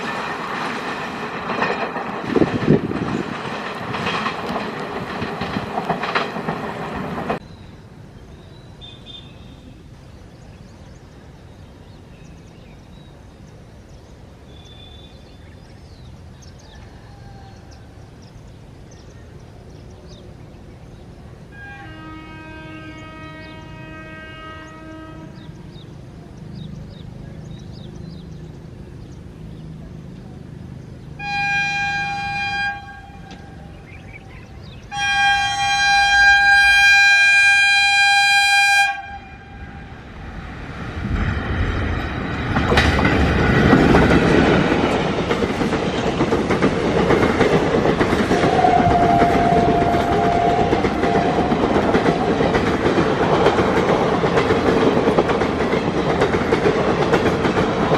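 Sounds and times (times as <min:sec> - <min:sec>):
train wheels rumbling on rails: 0:00.0 - 0:57.9
train horn blasts: 0:21.5 - 0:25.7, 0:31.2 - 0:33.9, 0:34.9 - 0:40.1, 0:48.3 - 0:51.8.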